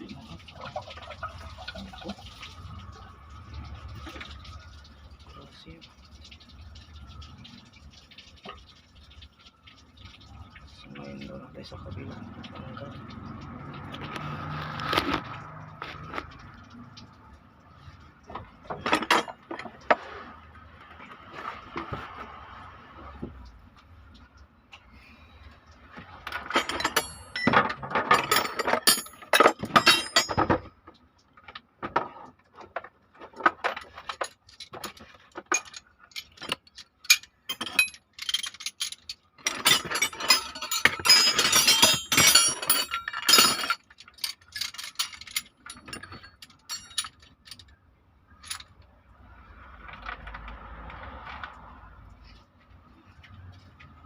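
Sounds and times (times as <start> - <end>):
metal tools and parts clinking: 18.3 - 20.0, 26.2 - 30.7, 32.7 - 47.8, 48.4 - 48.8.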